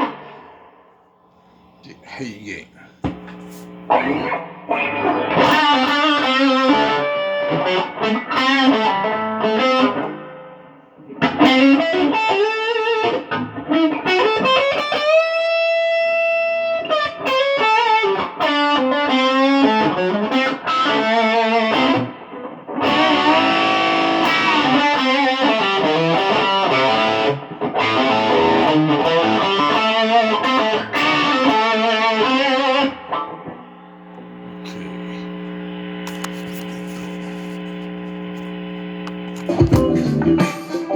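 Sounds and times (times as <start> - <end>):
electric guitar lead line: 1.4 - 40.9.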